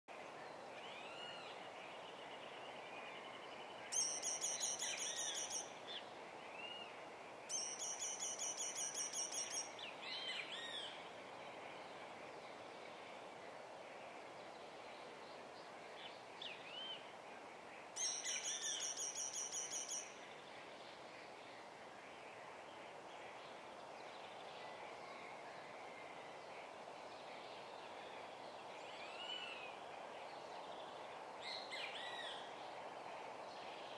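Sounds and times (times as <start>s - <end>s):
background hiss: 0.1s - 33.9s
songbird high trills: 3.9s - 5.7s, 7.5s - 9.7s.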